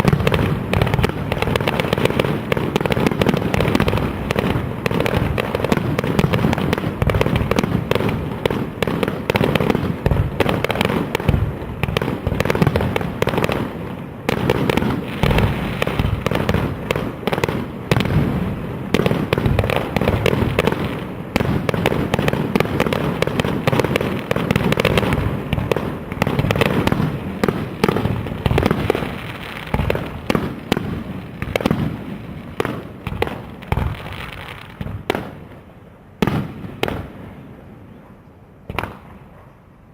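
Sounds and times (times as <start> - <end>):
fireworks bangs: 0.0 - 37.7, 38.6 - 39.4.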